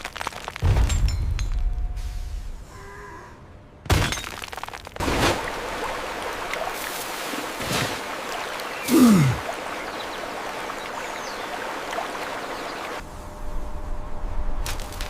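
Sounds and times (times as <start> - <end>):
rushing water surging: 5.0 - 13.0.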